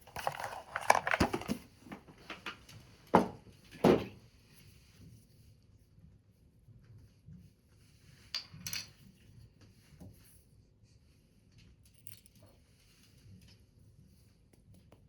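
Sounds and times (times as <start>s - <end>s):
paper rustling: 0.0s - 2.4s.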